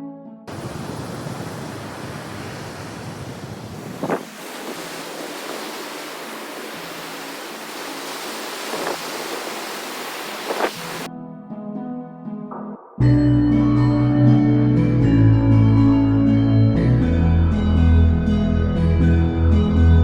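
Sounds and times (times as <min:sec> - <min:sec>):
ocean surf rushing: 0:00.5 - 0:11.1
wind on microphone: 0:00.5 - 0:11.1.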